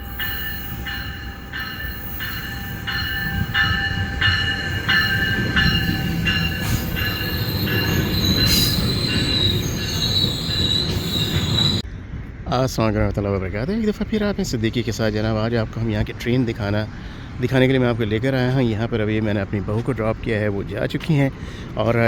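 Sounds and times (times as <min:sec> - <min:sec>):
high wheel squeal: 0:00.0 - 0:11.8
train rumbling on rails: 0:00.0 - 0:22.0.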